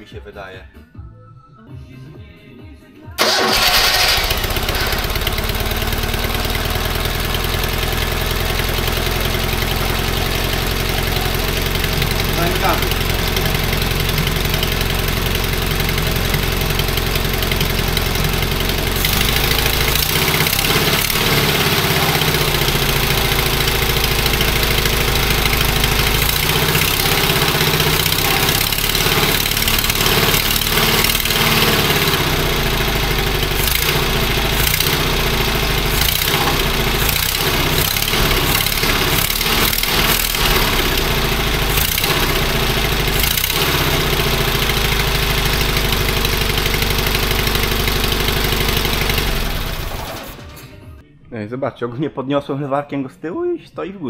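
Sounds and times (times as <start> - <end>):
two-cylinder car engine revving: 3.2 - 50.5.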